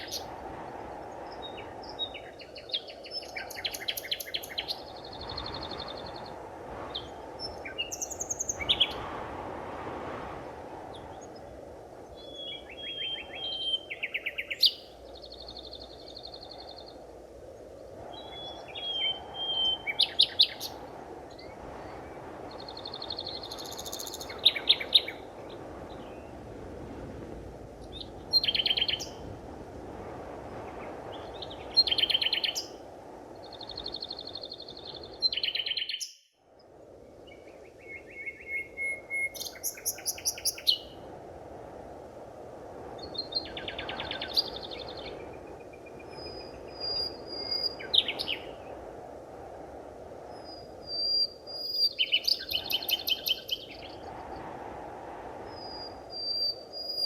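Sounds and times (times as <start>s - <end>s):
bird whistling and trilling: 38.1s - 40.8s.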